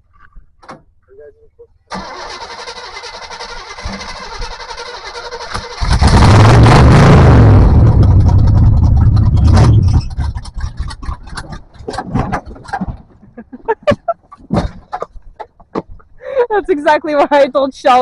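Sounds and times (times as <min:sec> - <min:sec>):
off-road vehicle engine revving: 0:01.9 - 0:12.0.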